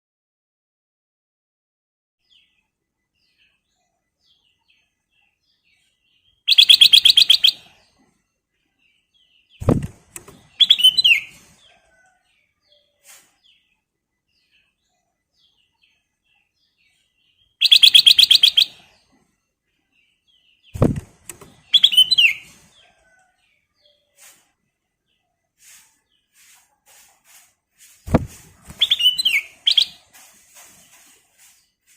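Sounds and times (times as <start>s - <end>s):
bird singing trill and whistle: 6.4s - 7.7s, 10.5s - 11.4s, 17.5s - 18.9s, 21.6s - 22.5s, 28.7s - 30.0s
short dull thud: 9.6s - 10.4s, 20.8s - 21.6s, 28.1s - 28.8s.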